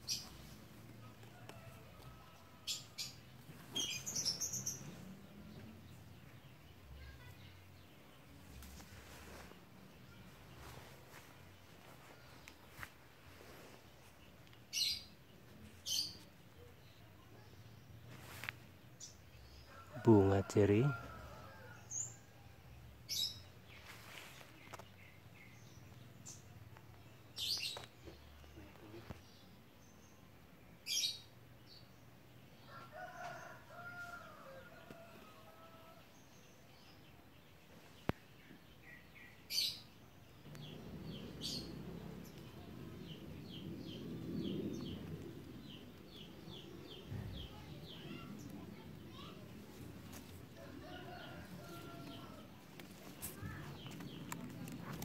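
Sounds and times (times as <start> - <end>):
birds chirping: 0.0 - 12.9, 36.6 - 50.0, 50.6 - 55.0
faint outdoor background: 0.0 - 55.0
leafy branches rustling: 8.4 - 14.9, 18.0 - 18.8, 23.7 - 25.1, 40.6 - 55.0.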